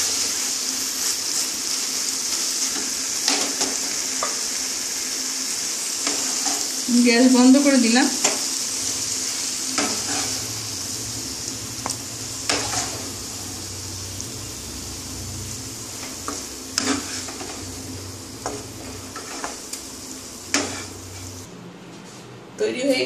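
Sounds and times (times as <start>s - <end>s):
food sizzling in a pan: 0.0s - 21.5s
wooden spatula scraping a pan: 9.8s - 10.5s, 12.5s - 13.1s, 16.0s - 17.8s, 18.4s - 19.7s, 20.5s - 21.4s.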